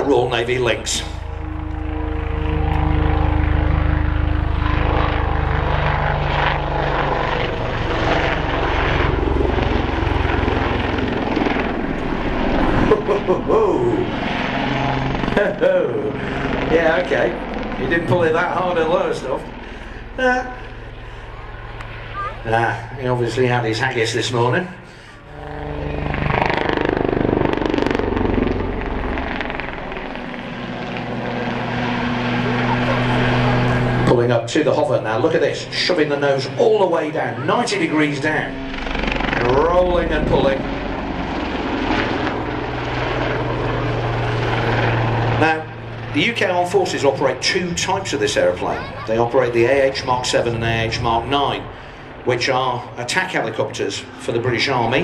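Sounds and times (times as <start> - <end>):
humming tone: 0.0 - 16.7, 17.3 - 34.1
helicopter rotor beat: 0.0 - 55.0
turboshaft engine whine: 0.0 - 55.0.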